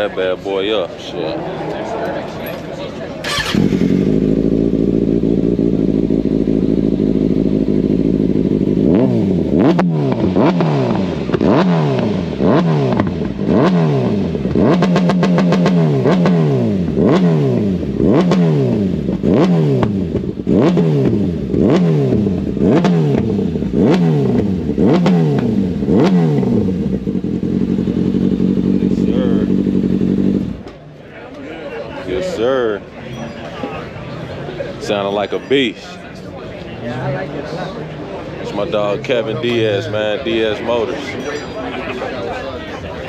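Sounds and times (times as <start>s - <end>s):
motorcycle engine revving: 3.2s - 30.9s.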